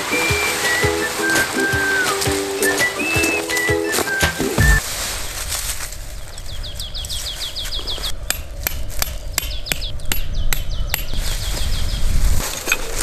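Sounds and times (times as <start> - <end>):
small bird singing: 0.1 - 4.8, 6.4 - 8.4, 9.3 - 12.2
hatchet tapping tent stake: 8.3 - 11.2.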